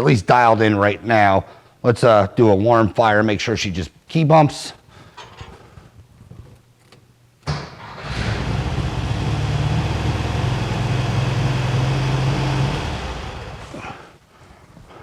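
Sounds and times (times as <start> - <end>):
car engine starting and running: 7.5 - 13.8.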